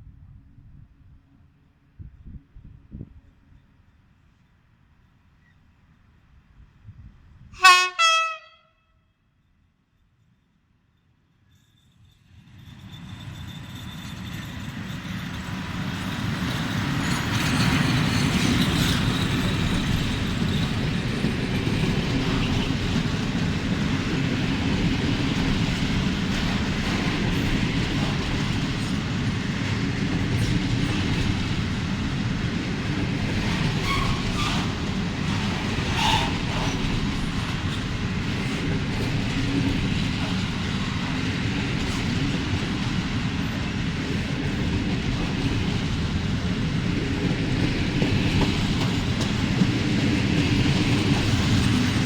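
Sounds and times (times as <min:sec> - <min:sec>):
freight train wagons rolling: 0:11.6 - 0:52.0.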